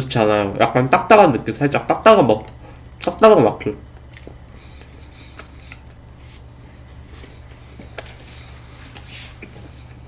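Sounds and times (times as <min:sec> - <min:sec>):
faint chewing and mouth clicks: 0:02.4 - 0:03.2, 0:03.9 - 0:06.0.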